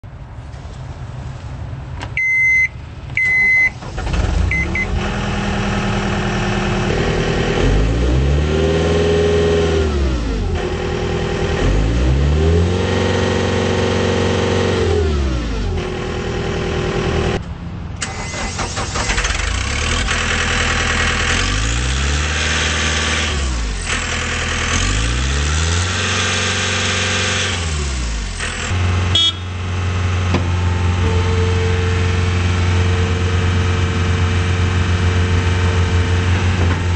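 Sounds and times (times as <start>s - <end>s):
diesel engine starting and revving: 0.6s - 36.9s
short beeps: 2.2s - 3.8s, 4.5s - 4.9s.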